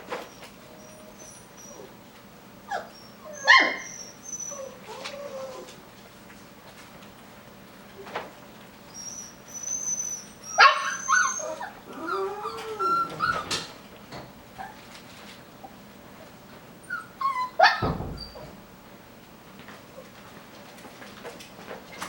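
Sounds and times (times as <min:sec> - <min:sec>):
puppy whining: 0:00.1 - 0:05.9, 0:08.8 - 0:13.8, 0:14.6 - 0:15.0, 0:16.8 - 0:18.6
puppies whimpering and yipping: 0:00.2 - 0:02.0, 0:02.6 - 0:05.8, 0:08.9 - 0:13.8, 0:16.8 - 0:18.6
sharp knocks: 0:17.8 - 0:18.9.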